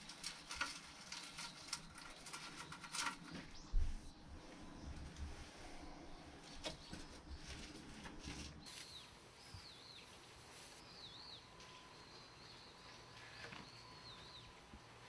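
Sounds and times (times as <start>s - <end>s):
small bird chirping: 8.6s - 15.0s.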